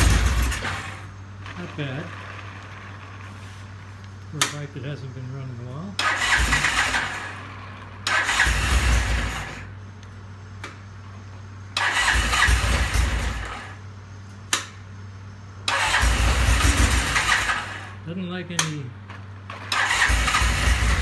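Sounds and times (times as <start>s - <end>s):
motorcycle engine revving and idling: 0.0s - 3.7s, 4.3s - 9.8s, 11.8s - 13.8s, 15.7s - 18.6s, 19.2s - 21.0s.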